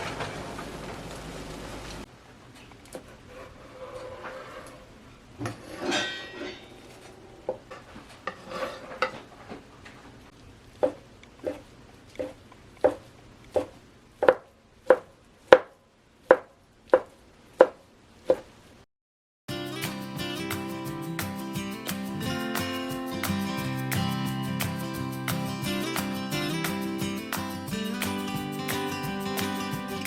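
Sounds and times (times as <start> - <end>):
kitchen clatter and rustling: 0.0 - 2.1, 2.9 - 10.2
knife chopping on cutting board: 10.8 - 11.6, 12.2 - 18.5.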